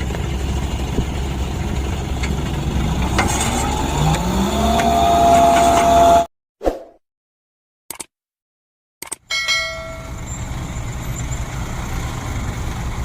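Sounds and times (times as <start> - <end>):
truck engine revving: 0.0 - 6.3, 10.0 - 13.0.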